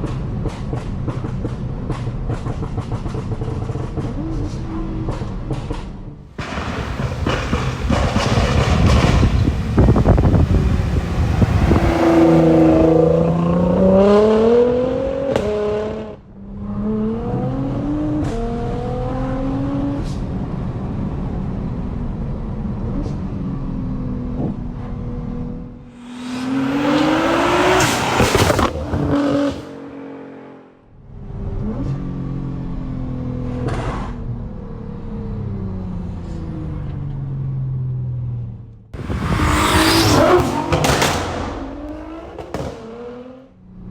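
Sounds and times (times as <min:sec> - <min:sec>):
car engine revving loud exhaust: 0:06.4 - 0:20.3, 0:25.9 - 0:32.0, 0:39.0 - 0:43.6.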